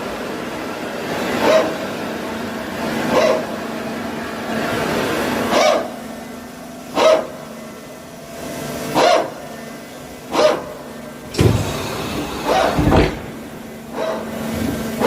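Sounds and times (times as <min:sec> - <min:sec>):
steady mechanical hum: 0:00.0 - 0:15.0
dog barking: 0:01.4 - 0:01.8, 0:03.1 - 0:03.5, 0:05.5 - 0:05.9, 0:07.0 - 0:07.4, 0:09.0 - 0:09.4, 0:10.3 - 0:10.8, 0:12.4 - 0:12.9, 0:13.9 - 0:14.3.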